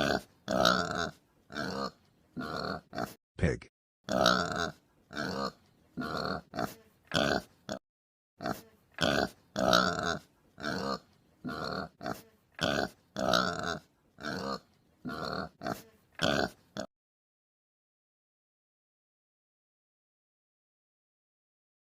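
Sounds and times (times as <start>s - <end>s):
pig grunting: 0.0s - 3.2s, 4.1s - 7.8s, 8.4s - 16.9s.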